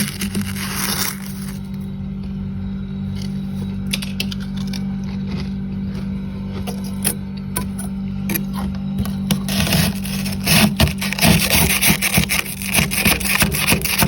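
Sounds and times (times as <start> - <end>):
freezer frost being scraped: 0.0 - 1.8, 8.3 - 14.0
steady low hum: 0.0 - 14.0.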